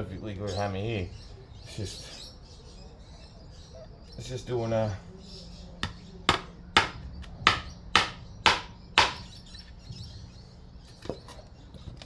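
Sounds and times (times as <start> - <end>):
hammer hitting nail into wood: 5.8 - 9.3.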